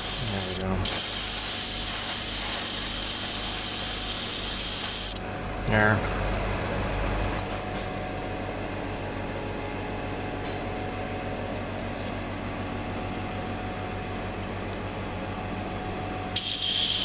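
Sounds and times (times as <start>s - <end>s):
airbrush compressor humming: 0.0s - 7.4s, 16.3s - 17.0s.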